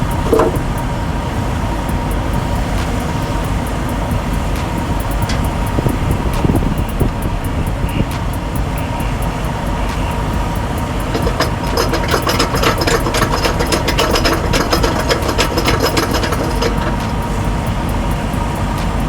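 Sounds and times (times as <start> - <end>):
fast clicking rattle: 0.0 - 19.0
truck engine running: 0.0 - 19.0.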